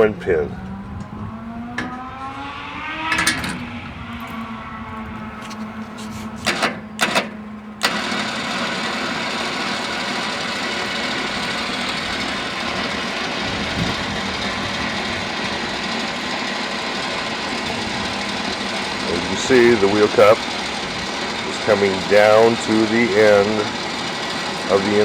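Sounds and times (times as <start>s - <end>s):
electric winch motor running: 0.0s - 25.0s
metal clanks: 5.4s - 8.0s.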